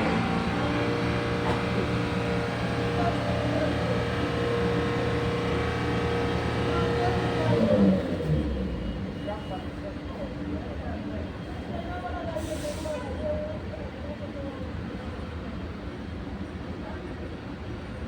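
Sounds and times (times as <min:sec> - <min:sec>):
diesel bus engine idling: 0:00.0 - 0:09.7.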